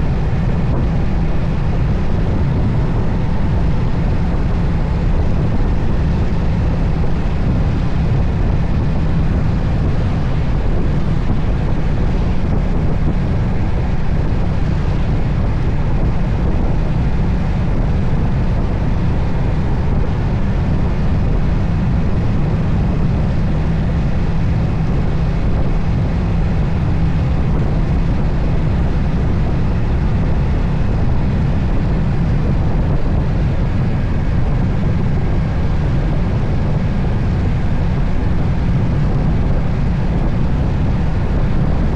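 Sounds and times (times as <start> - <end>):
motorcycle engine running: 0.0 - 41.9
wind rushing over microphone: 0.0 - 41.9.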